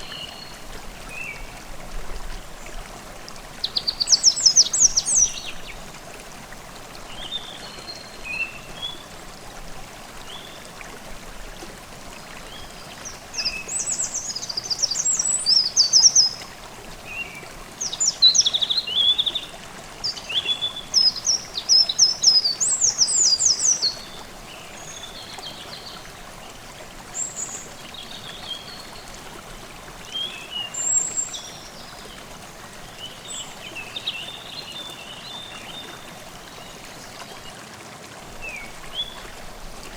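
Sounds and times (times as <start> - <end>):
songbirds singing: 0.0 - 1.7, 2.5 - 6.0, 12.2 - 37.6
stream babbling: 0.0 - 39.9.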